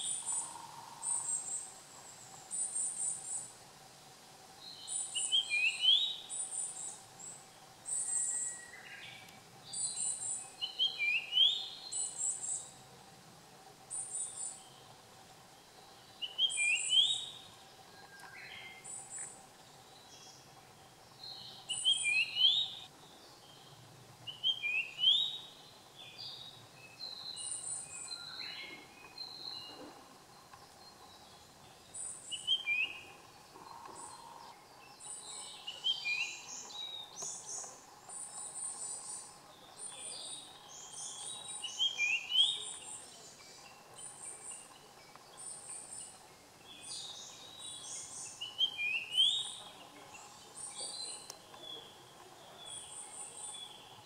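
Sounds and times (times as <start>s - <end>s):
bird singing whistled phrases: 5.2s - 6.2s, 8.0s - 9.1s, 9.8s - 12.1s, 21.7s - 22.9s, 24.3s - 25.4s, 32.3s - 33.0s, 40.8s - 42.8s, 48.4s - 49.6s.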